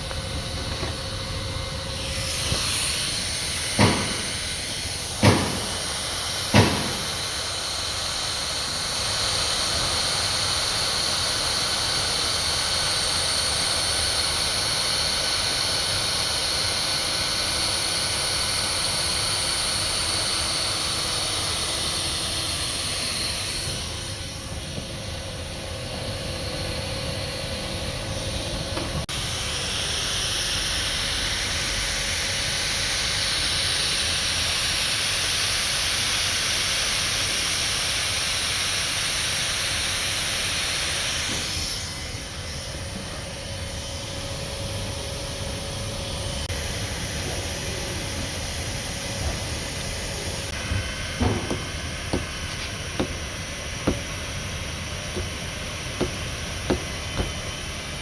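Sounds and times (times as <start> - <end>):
sharp taps: 51.5 - 53.3, 53.9 - 54.2, 56.0 - 57.5.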